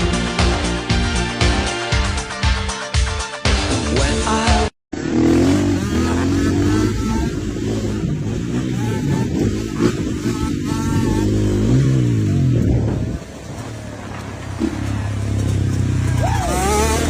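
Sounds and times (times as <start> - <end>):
motorcycle engine revving: 4.3 - 17.0.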